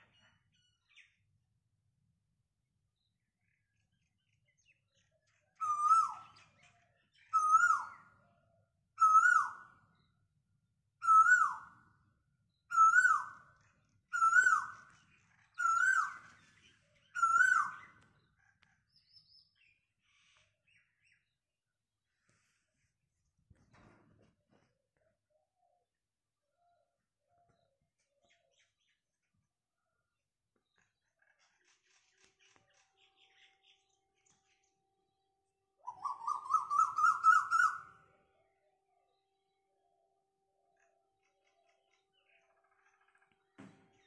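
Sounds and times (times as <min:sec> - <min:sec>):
bird calling: 0:05.6 - 0:06.6, 0:07.3 - 0:08.0, 0:09.0 - 0:09.7, 0:11.0 - 0:11.7, 0:12.7 - 0:13.4, 0:14.1 - 0:18.7, 0:35.8 - 0:38.0.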